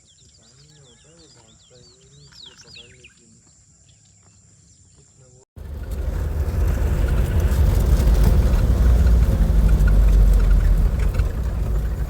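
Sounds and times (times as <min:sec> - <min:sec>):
vehicle rumbling: 0:05.6 - 0:12.0.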